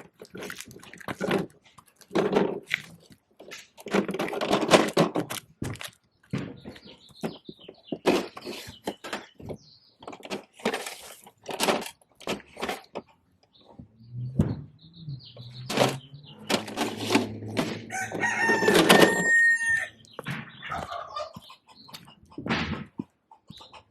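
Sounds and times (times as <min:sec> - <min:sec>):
plastic toy truck clattering: 0:00.0 - 0:06.0, 0:06.6 - 0:13.1, 0:15.7 - 0:19.7.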